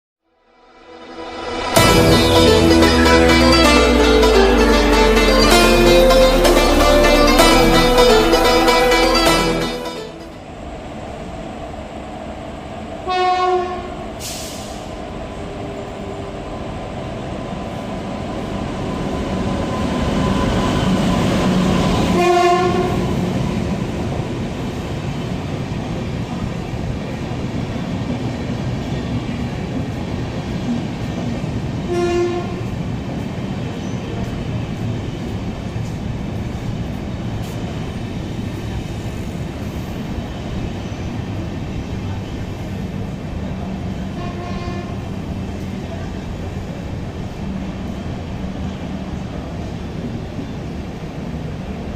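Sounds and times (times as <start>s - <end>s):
train rumbling past: 0.4s - 51.9s
locomotive horn blasts: 0.7s - 10.4s, 13.1s - 14.0s, 22.0s - 23.3s, 31.9s - 32.7s, 44.1s - 45.1s.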